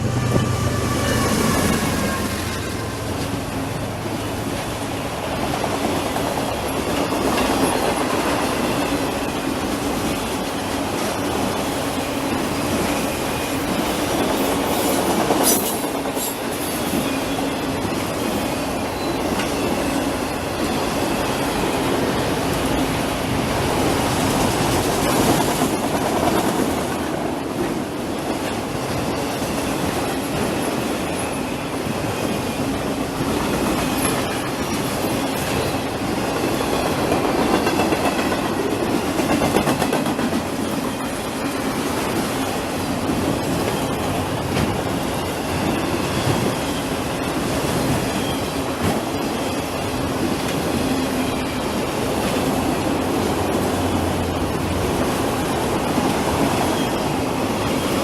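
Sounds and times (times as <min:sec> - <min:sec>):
train wheels clattering over rail joints: 0:33.2 - 0:51.0.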